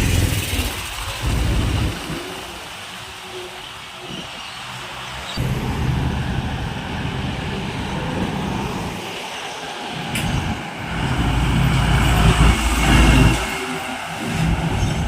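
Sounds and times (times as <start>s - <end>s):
truck passing on highway: 4.5s - 15.0s.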